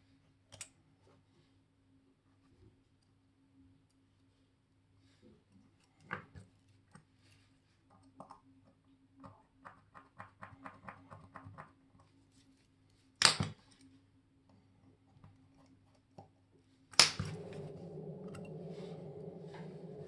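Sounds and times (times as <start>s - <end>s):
steady hum: 17.2s - 20.0s.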